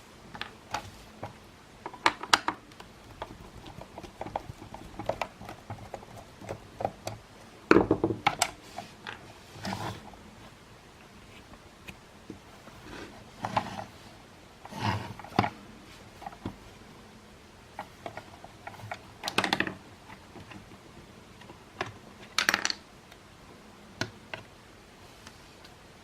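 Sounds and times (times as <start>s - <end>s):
plastic parts clicking: 17.8s - 20.6s.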